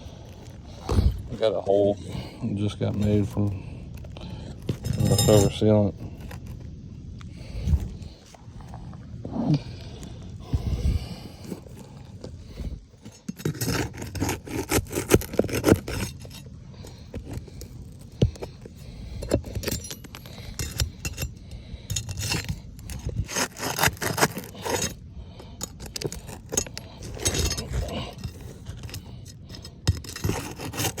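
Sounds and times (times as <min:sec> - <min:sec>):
scraping and rubbing: 0:10.8 - 0:31.0.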